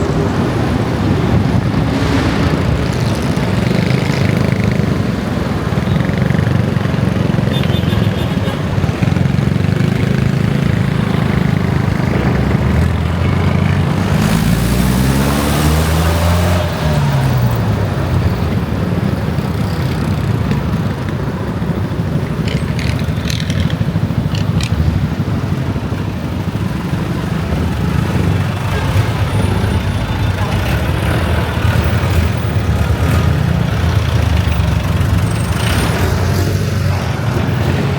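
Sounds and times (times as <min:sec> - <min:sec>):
rush of noise: 0:00.0 - 0:05.8
motorcycle engine running: 0:17.9 - 0:37.9.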